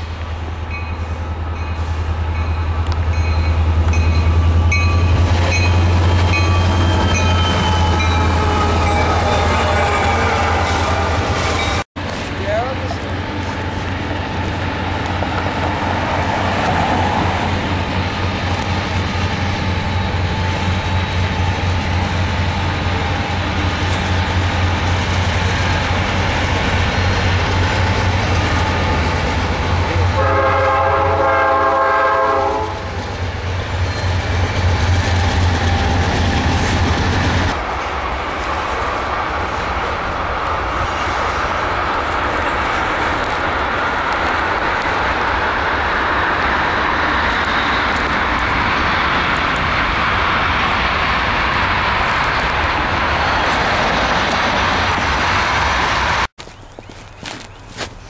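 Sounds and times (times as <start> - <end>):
freight cars rolling on rails: 0.0 - 31.8, 32.8 - 56.3
diesel locomotive engine rumble: 0.0 - 58.0
locomotive air horn blast: 7.0 - 11.6, 30.0 - 32.9.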